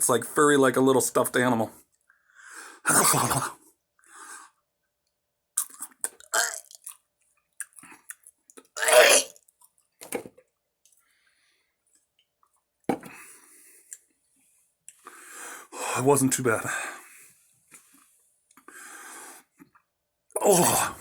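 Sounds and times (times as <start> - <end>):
mouth clicks: 5.6 - 7.0, 7.6 - 8.8
man chewing with crunches: 5.6 - 9.9.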